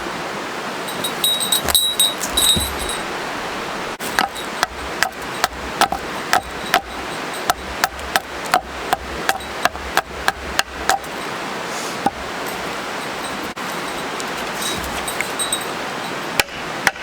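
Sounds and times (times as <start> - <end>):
steady background hiss: 0.0 - 16.8.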